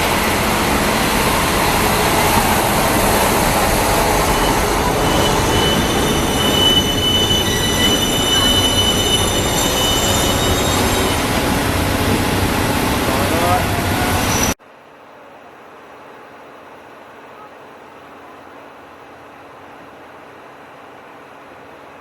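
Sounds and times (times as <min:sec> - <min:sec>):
train rumbling over rails: 0:00.0 - 0:14.6
train wheels squealing: 0:01.1 - 0:14.6.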